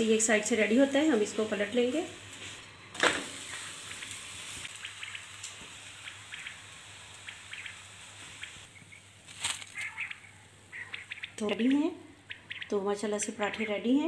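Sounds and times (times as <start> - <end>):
batter sizzling in oil: 0.0 - 9.6.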